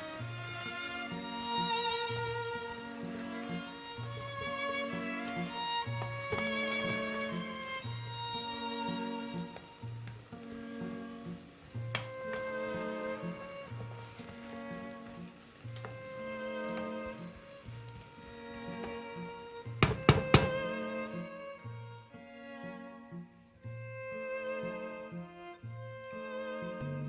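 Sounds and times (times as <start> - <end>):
food sizzling in a pan: 0.0 - 21.2
sharp knocks: 19.8 - 20.7.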